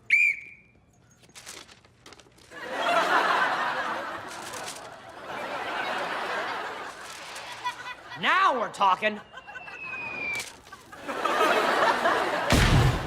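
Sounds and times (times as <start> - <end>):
studio audience laughter: 2.6 - 8.2, 9.2 - 12.6.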